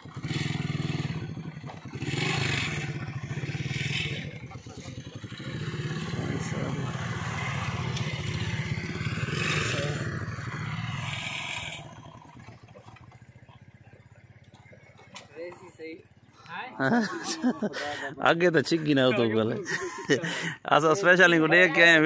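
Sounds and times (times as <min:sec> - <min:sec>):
vehicle engine running: 0:00.0 - 0:17.1.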